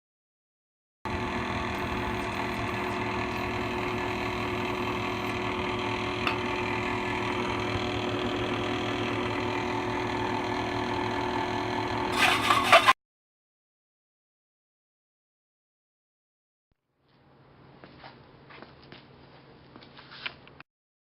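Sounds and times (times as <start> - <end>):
drill press humming: 1.1 - 13.0.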